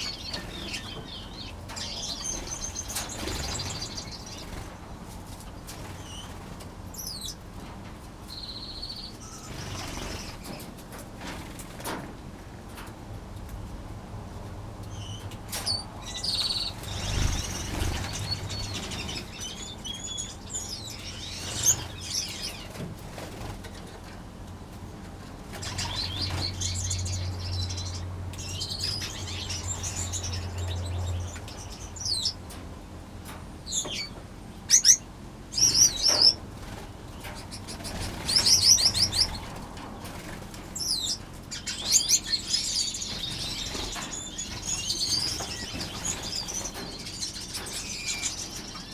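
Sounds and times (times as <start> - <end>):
finches chirping and trilling: 0.0 - 7.4, 8.2 - 10.8, 14.8 - 23.9, 25.3 - 32.6, 33.6 - 48.9
wings fluttering: 0.0 - 7.4, 9.4 - 12.2, 15.4 - 32.4, 35.5 - 48.9.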